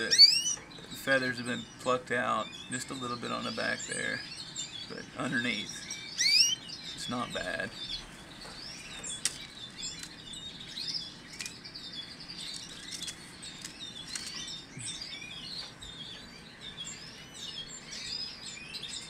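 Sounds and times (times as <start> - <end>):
canaries chirping: 0.0 - 19.0
sharp clicks: 12.4 - 14.4.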